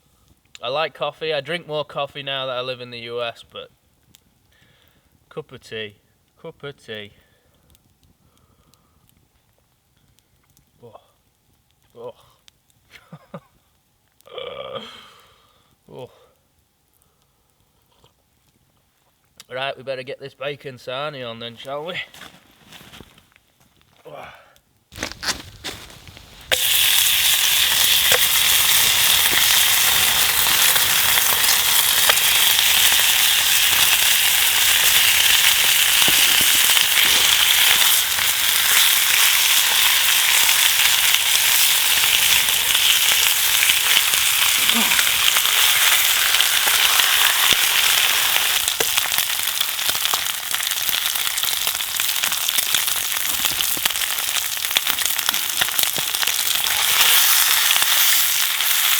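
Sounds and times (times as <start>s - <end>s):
bacon sizzling in a pan: 26.0s - 58.9s.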